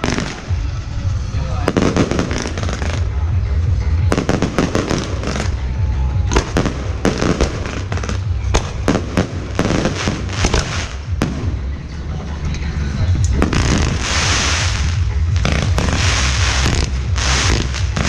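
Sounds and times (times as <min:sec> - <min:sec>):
fireworks bangs and crackles: 0:00.0 - 0:12.0, 0:13.0 - 0:18.0
low rumble: 0:00.0 - 0:18.0.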